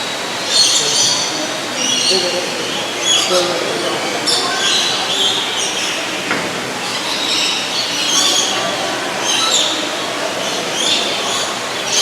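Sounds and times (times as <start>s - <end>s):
background hubbub: 0.0s - 12.0s.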